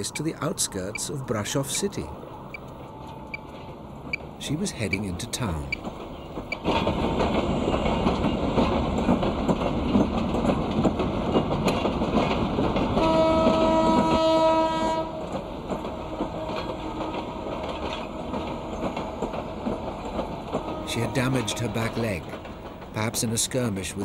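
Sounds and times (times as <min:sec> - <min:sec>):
train passing: 0:00.0 - 0:24.0
train horn: 0:13.0 - 0:15.4, 0:20.5 - 0:21.4.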